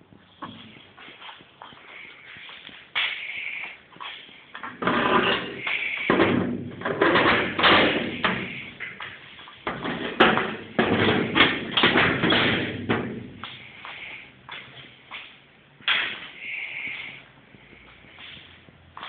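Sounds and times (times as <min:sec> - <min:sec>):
knocks and clattering: 0:04.1 - 0:13.6.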